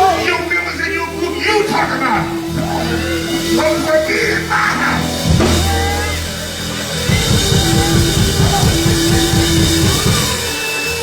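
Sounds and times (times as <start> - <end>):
band playing held chords: 0.0 - 11.0
fast drum strokes: 0.0 - 11.0.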